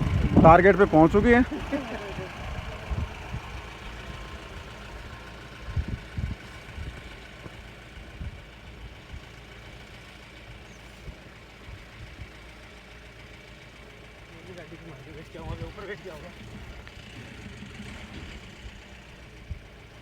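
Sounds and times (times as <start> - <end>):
wind buffeting microphone: 0.0 - 9.3, 15.2 - 19.9
vehicle engine idling: 0.0 - 20.0.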